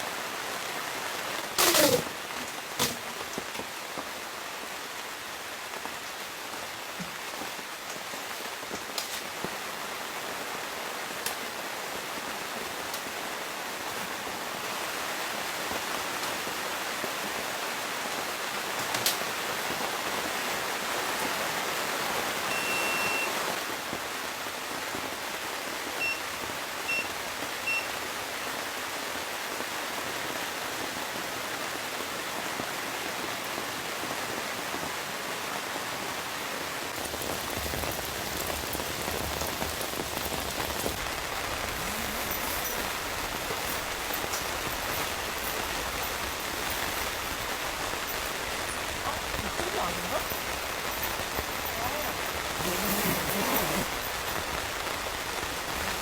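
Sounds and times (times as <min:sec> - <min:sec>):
rain pattering on a tent: 0:00.0 - 0:56.0
electronic beeps: 0:22.5 - 0:23.3.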